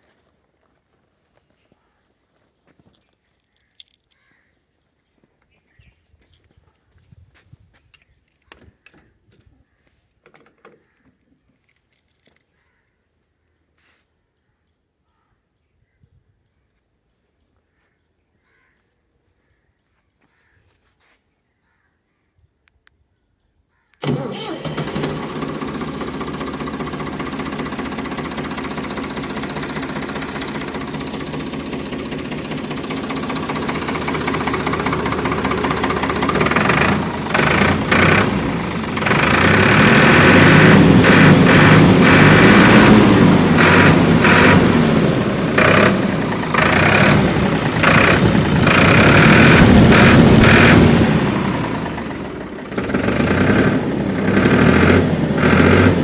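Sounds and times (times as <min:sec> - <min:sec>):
tractor diesel engine idling: 0:24.0 - 0:56.0.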